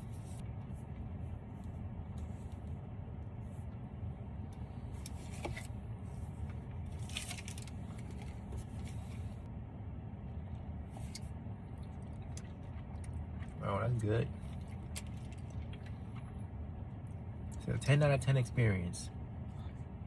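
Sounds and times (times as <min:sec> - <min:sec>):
low car cabin rumble: 0:00.0 - 0:20.0.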